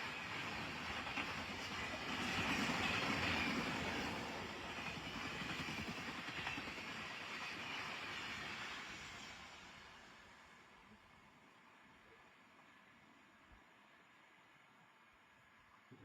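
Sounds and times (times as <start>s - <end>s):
train rumbling past: 0.0s - 11.8s.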